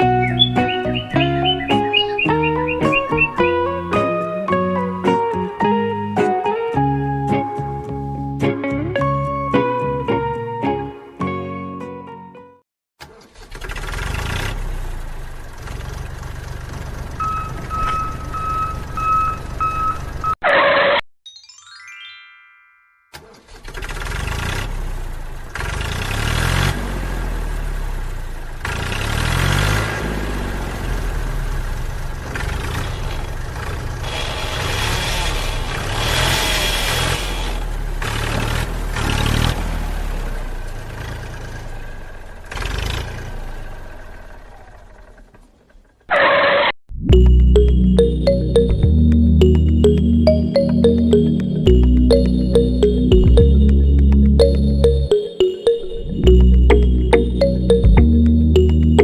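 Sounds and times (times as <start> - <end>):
small engine running: 13.3 - 17.2, 23.4 - 46.6
short beeps: 17.2 - 20.4
falling electronic tone: 47.0 - 59.0.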